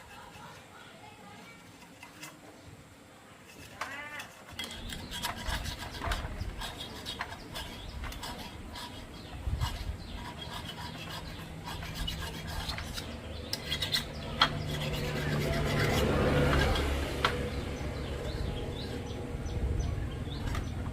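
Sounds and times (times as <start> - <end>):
rubbing and scraping: 0.0 - 20.9.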